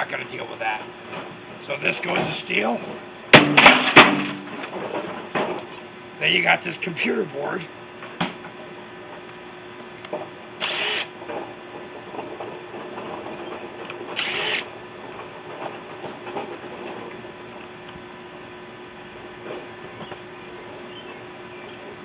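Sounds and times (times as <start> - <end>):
power drill bursts: 10.6 - 11.1, 14.2 - 14.7.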